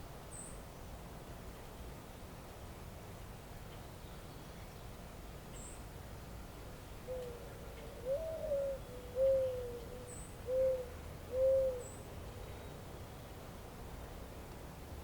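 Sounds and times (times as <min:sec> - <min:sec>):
bird cooing call: 0:07.0 - 0:12.6.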